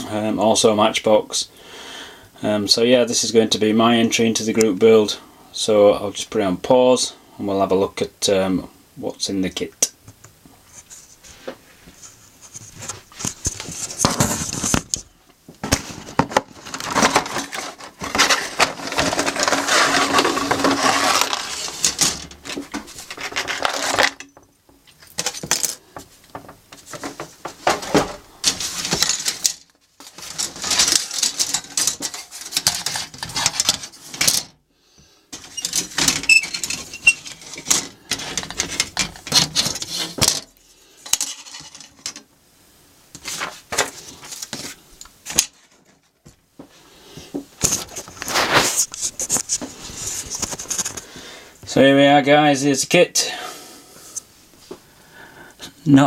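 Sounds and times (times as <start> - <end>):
rustling: 10.5 - 34.6, 35.3 - 42.3, 43.1 - 51.8
plastic parts clattering: 12.5 - 34.6, 35.3 - 42.3, 43.2 - 46.2.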